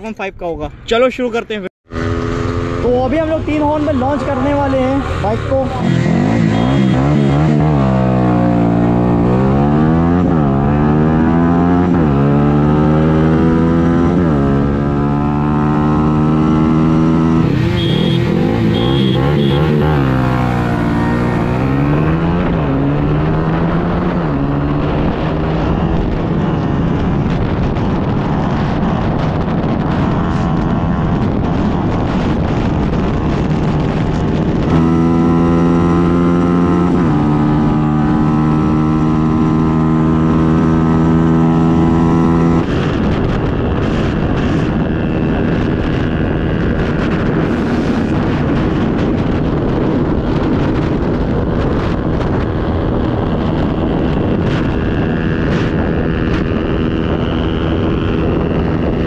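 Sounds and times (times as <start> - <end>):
wind rush on microphone: 0.0 - 59.0
motorcycle engine accelerating: 1.8 - 59.0.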